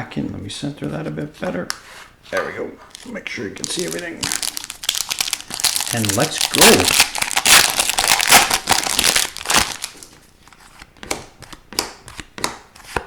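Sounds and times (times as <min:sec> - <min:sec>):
cards clicking: 0:02.9 - 0:04.5
foil wrapper tearing and crinkling: 0:02.9 - 0:10.2.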